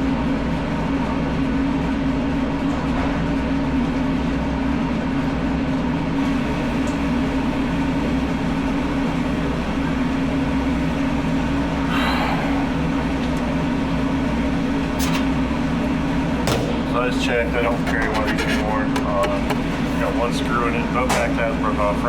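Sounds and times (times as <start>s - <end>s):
machinery droning: 6.2s - 22.0s.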